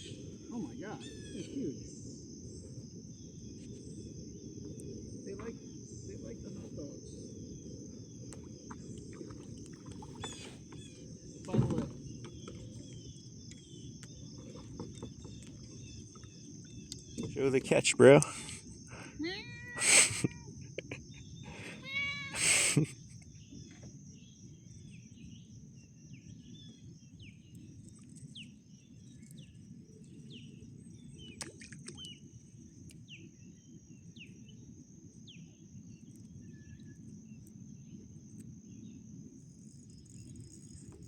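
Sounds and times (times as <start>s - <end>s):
high insect drone: 0.0s - 41.0s
wind and water hiss: 0.0s - 41.0s
drawn-out meow-like call: 19.2s - 20.5s, 21.5s - 22.6s.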